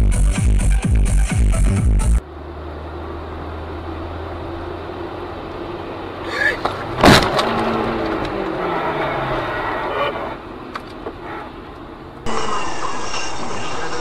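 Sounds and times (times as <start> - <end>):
steady road noise: 0.0 - 14.0
vehicle engine falling in tone: 0.9 - 14.0
loud bang of car collision: 7.0 - 7.6.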